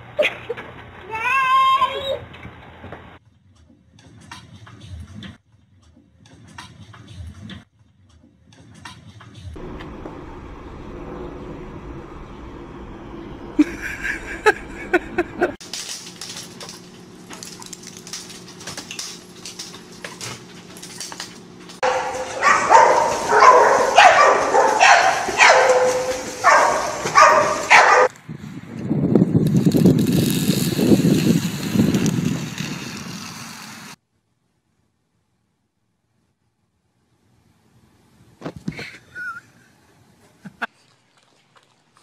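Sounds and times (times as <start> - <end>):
dog yipping and barking: 21.8 - 28.1.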